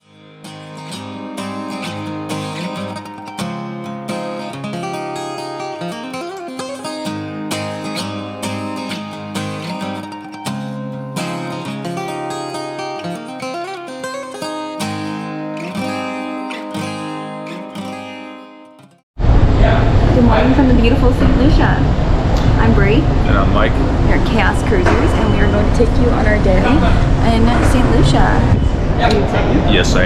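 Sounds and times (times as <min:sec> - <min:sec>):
strummed acoustic guitar tune: 0:00.0 - 0:19.0, 0:23.8 - 0:29.0.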